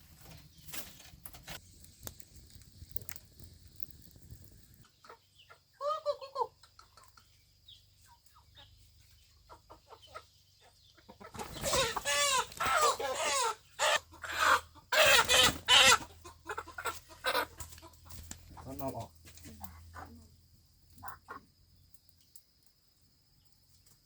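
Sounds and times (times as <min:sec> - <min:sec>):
chickens clucking and squawking: 0:04.8 - 0:21.8.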